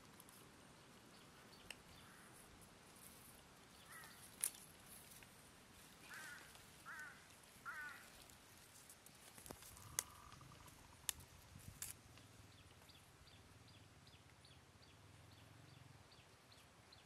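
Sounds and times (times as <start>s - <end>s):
bird calling: 1.2s - 2.5s, 3.7s - 4.6s, 5.9s - 8.4s, 9.5s - 11.2s.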